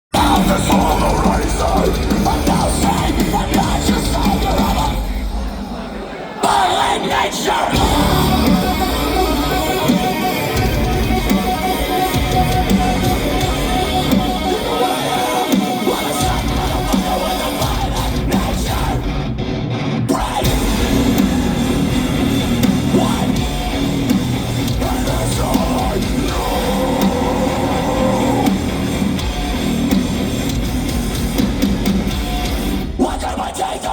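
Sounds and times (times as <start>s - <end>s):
live metal band playing: 0.1s - 33.9s.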